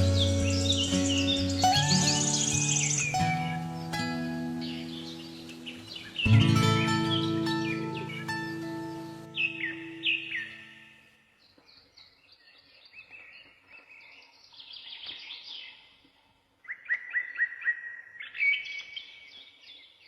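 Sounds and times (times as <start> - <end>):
background music: 0.0 - 10.8
songbirds chirping: 0.0 - 20.0.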